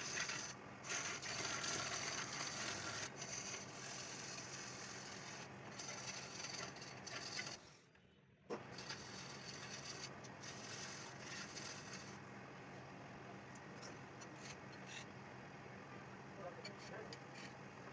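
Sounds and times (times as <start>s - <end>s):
wood lathe motor humming: 0.0s - 7.6s, 8.8s - 12.1s
chisel scraping spinning wood: 0.0s - 7.7s, 8.6s - 12.2s, 13.8s - 15.1s.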